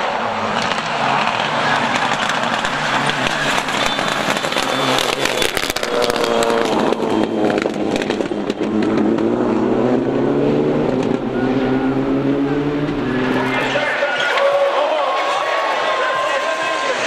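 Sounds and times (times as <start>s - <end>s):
rally car engine revving: 0.0s - 14.4s
engine cracks and pops: 0.4s - 9.6s.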